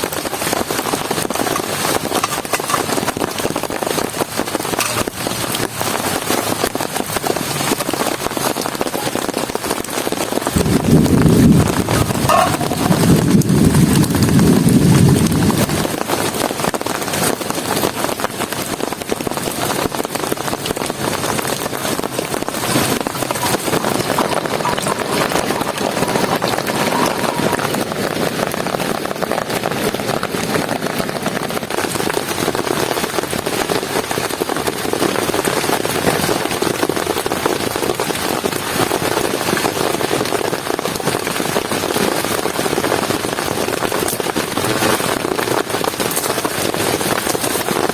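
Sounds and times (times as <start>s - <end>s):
heavy rain falling: 0.0s - 47.9s
raindrops crackling on shelter: 0.0s - 47.9s
low rumble: 10.6s - 15.9s.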